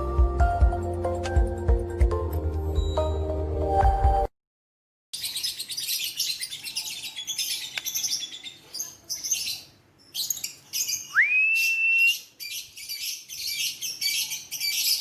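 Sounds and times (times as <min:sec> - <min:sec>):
bird whistle: 0:10.8 - 0:15.0.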